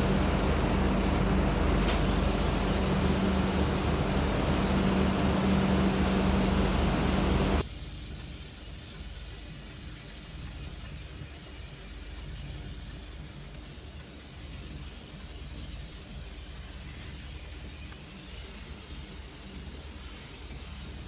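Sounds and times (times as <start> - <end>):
steady hum: 0.0 - 7.6
train rumbling inside carriage: 0.0 - 7.6.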